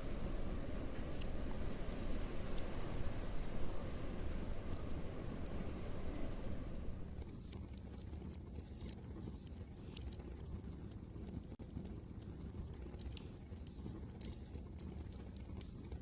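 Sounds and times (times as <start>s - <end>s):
wind rumble: 0.0s - 7.5s
wood fire crackling: 0.0s - 7.6s.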